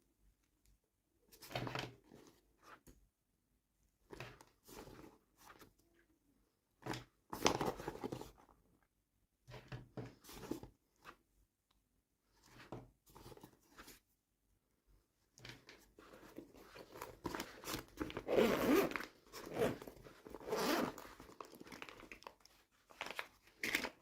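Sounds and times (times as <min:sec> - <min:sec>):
packaging crinkling and tearing: 0:21.0 - 0:24.0.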